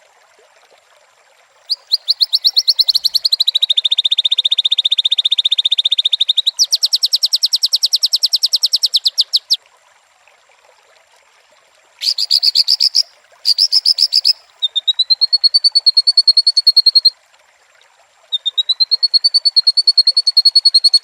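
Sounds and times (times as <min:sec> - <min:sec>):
bird singing a rapid trill: 0:01.7 - 0:09.6, 0:12.0 - 0:17.1, 0:18.4 - 0:21.0.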